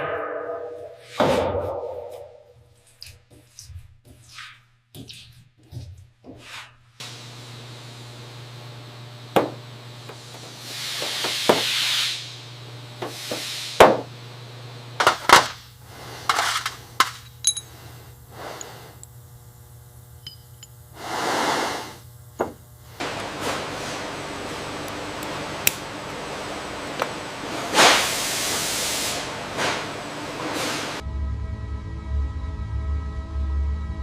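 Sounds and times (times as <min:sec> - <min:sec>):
low steady hum: 0:14.1 - 0:21.0, 0:22.0 - 0:31.0
metal tools clinking: 0:16.3 - 0:17.9, 0:20.2 - 0:20.8.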